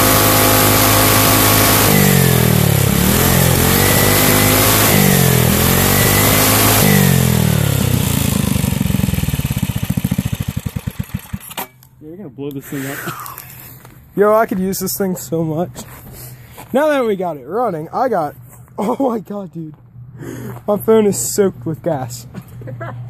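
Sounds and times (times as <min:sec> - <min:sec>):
small engine running: 0:00.0 - 0:11.9.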